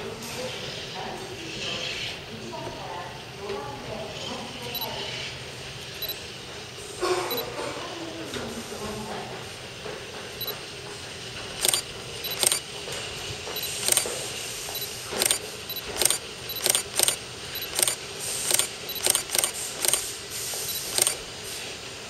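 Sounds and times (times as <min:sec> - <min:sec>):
metallic squeaks and clicks of train: 0:11.6 - 0:12.7, 0:13.5 - 0:14.1.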